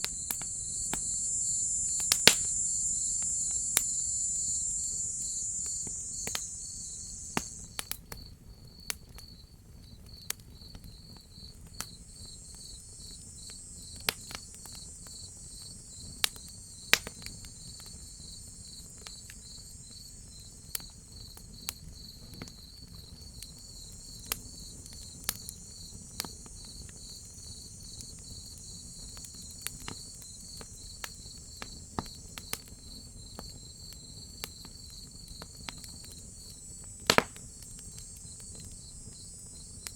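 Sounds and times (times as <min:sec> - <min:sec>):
high insect buzz: 0:00.0 - 0:08.0, 0:12.1 - 0:16.8, 0:17.5 - 0:21.0, 0:23.7 - 0:39.9
wood fire crackling and popping: 0:00.0 - 0:08.0, 0:11.6 - 0:18.0, 0:22.3 - 0:39.9
crickets chirping: 0:00.0 - 0:09.5, 0:10.1 - 0:39.9.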